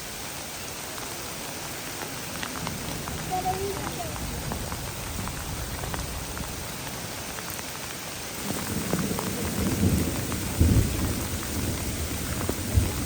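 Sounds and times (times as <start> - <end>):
rain hissing: 0.0 - 13.0
raindrops tapping: 0.0 - 13.0
low thunder rumble: 2.6 - 6.7, 8.4 - 13.0.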